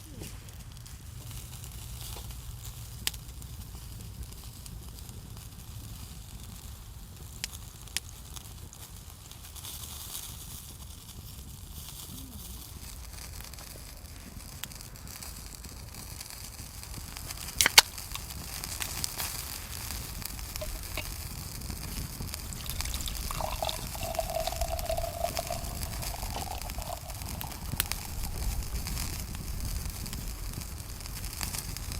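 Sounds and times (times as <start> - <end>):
fire crackling: 12.8 - 31.9
food sizzling on a grill: 24.3 - 31.9.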